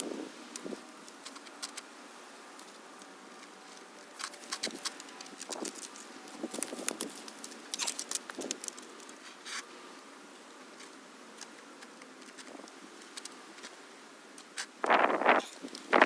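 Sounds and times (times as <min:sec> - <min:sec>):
faint outdoor hiss: 0:00.0 - 0:16.0
light clicks and rustles: 0:02.6 - 0:09.7, 0:10.7 - 0:13.8.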